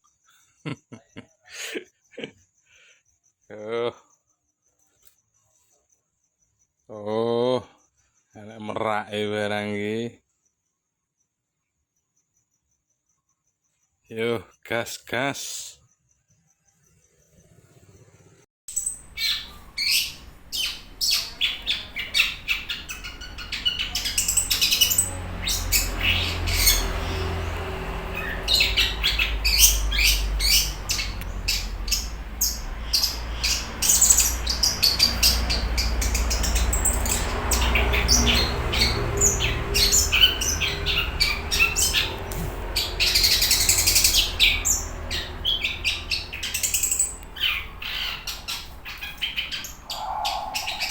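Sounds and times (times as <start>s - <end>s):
bird chattering song: 16.7s - 50.9s
low rumble: 18.8s - 50.9s.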